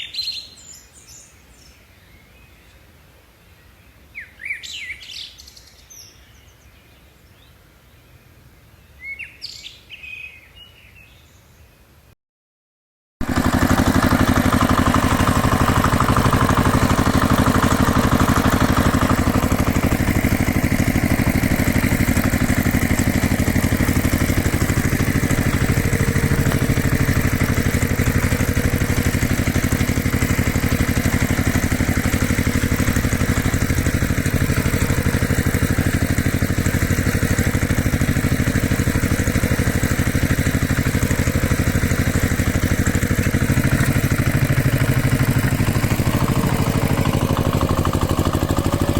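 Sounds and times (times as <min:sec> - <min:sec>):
tractor engine idling: 0:13.2 - 0:48.9.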